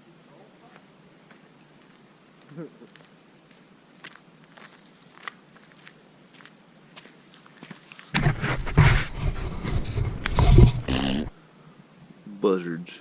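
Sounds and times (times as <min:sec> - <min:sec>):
faint footsteps on trail: 0:00.6 - 0:11.4
loud rough rumbling noise: 0:08.2 - 0:11.4.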